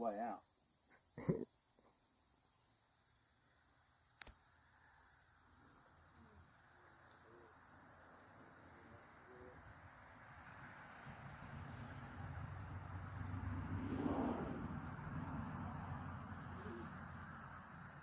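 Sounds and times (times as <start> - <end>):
insects chirring: 0.0 - 18.0
sharp click: 4.2 - 4.4.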